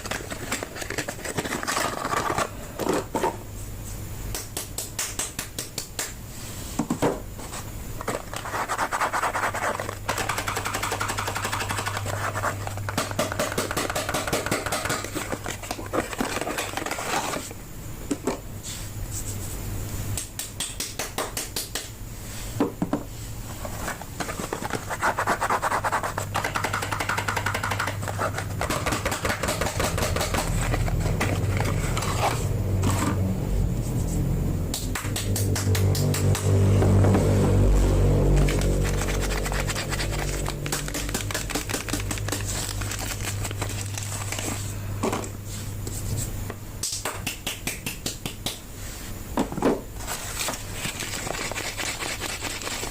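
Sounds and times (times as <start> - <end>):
packaging wrapper crinkling: 38.9 - 44.6.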